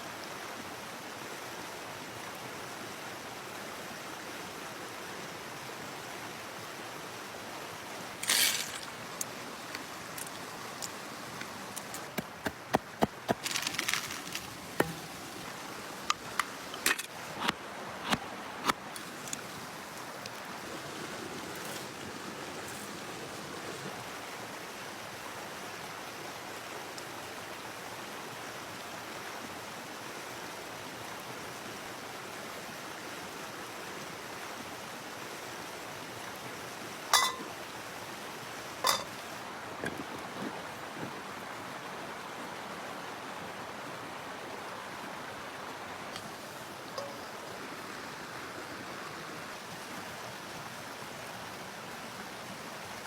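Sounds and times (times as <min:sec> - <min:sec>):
running water rushing: 0:00.0 - 0:53.0.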